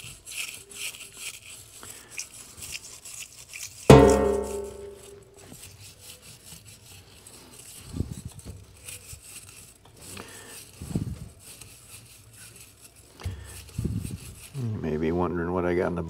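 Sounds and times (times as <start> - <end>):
scrubbing on a flashlight: 0.0 - 14.6
metallic ring: 3.9 - 5.2.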